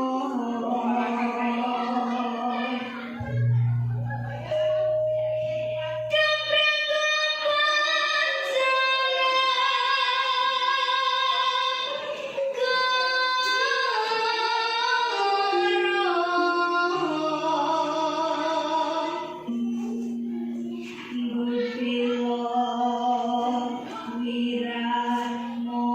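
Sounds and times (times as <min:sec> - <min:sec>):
low sustained instrument note: 0:03.2 - 0:07.6.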